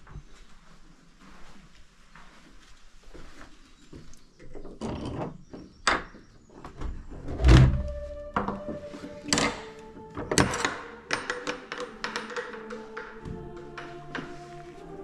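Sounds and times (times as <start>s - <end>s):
old door and latch clunking: 7.4s - 14.5s.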